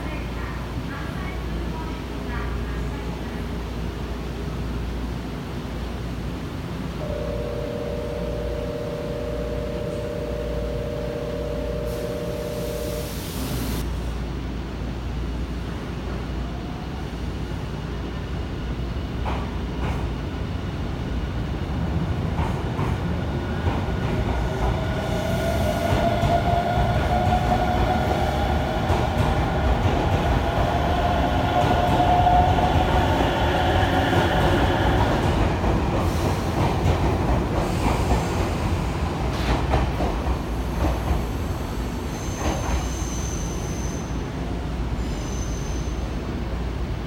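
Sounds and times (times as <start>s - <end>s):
electric train rumbling: 0.0s - 47.0s
high whine of train: 0.0s - 47.0s
train wheels clacking: 22.3s - 41.4s.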